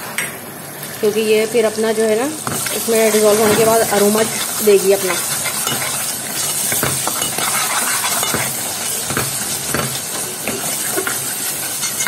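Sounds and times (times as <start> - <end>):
curry sizzling in a pot: 0.8 - 12.0
spoon scraping metal pot: 2.5 - 12.0.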